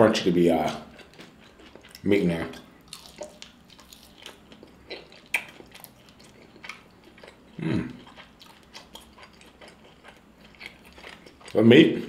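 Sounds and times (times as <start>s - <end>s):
crunchy chewing: 0.5s - 11.8s
person murmuring: 7.6s - 8.0s.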